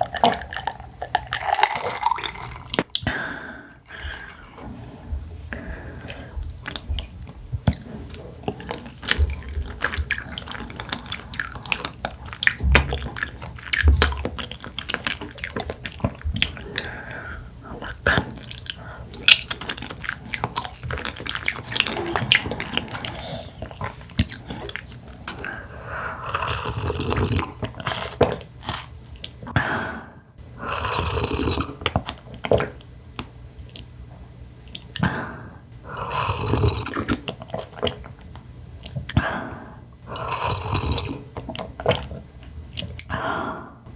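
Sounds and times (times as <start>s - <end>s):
chewing food: 0.0s - 3.1s, 5.6s - 25.6s, 36.0s - 39.2s, 40.1s - 43.1s.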